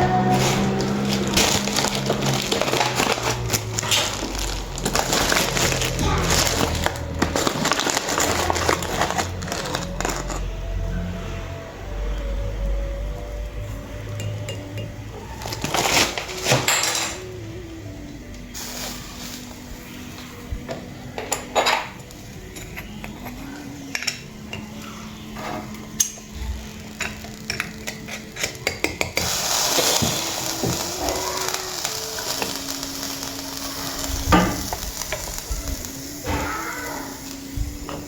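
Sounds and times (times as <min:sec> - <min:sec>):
utensils clinking against dishes: 0:00.0 - 0:10.5, 0:14.1 - 0:17.4, 0:18.6 - 0:38.0
steady hiss: 0:15.4 - 0:25.0, 0:25.6 - 0:38.0.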